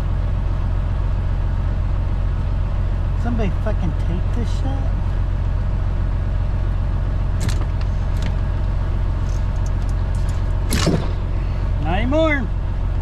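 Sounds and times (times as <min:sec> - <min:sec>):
diesel engine idling: 0:00.0 - 0:13.0
parts scraping and clicking: 0:07.4 - 0:11.4.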